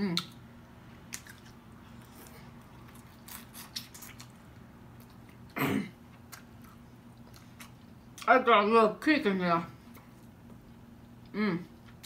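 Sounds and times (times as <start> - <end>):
chewing with wet mouth smacks: 1.1 - 8.3.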